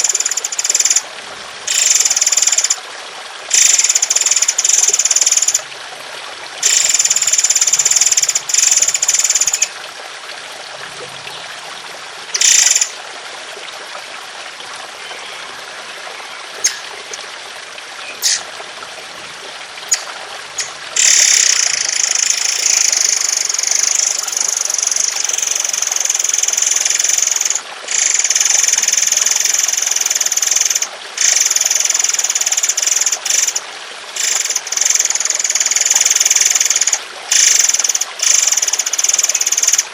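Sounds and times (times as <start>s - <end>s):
trickling water: 0.0s - 39.9s
songbird harsh song bursts: 16.3s - 17.2s, 18.0s - 19.3s.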